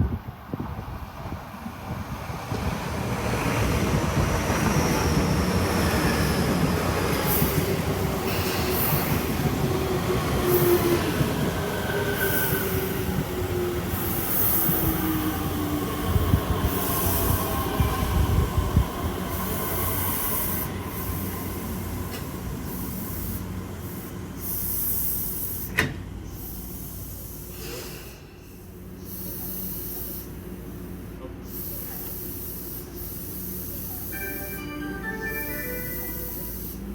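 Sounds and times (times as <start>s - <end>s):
wheels rumbling on rail: 0.0s - 36.9s
hissing air bursts: 22.6s - 36.9s.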